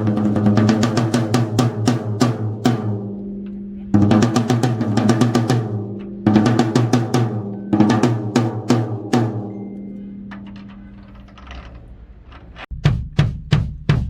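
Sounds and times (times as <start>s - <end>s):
snare drum strokes and rolls: 0.0s - 3.1s, 4.0s - 9.6s, 12.7s - 14.0s.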